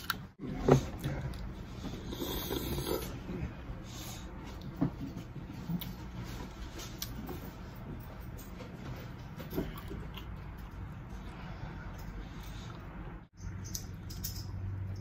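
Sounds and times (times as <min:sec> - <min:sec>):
breathing: 0:03.4 - 0:04.4, 0:11.2 - 0:12.9
person chewing: 0:09.6 - 0:14.0.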